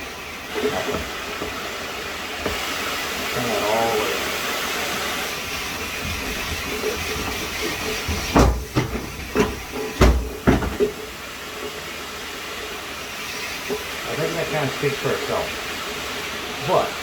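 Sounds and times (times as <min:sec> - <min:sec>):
shower head spraying water: 0:00.0 - 0:17.0
sharp knocks: 0:06.0 - 0:11.0.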